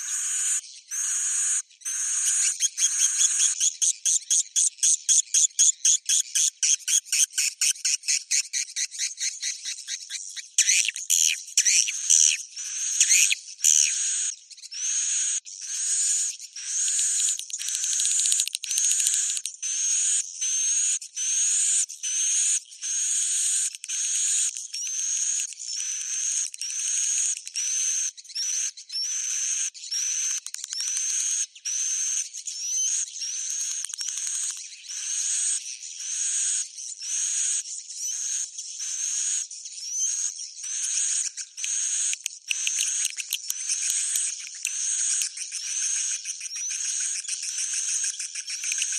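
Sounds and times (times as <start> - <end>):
recorded swiftlet chirping twitters: 0.0 - 48.9
rapid clicking twitters: 41.4 - 48.9.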